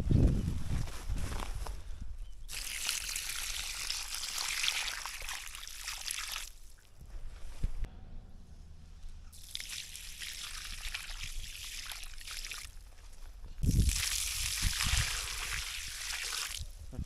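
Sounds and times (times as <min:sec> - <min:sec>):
water pouring onto ground: 0:02.5 - 0:06.9, 0:09.4 - 0:12.8, 0:13.6 - 0:16.9.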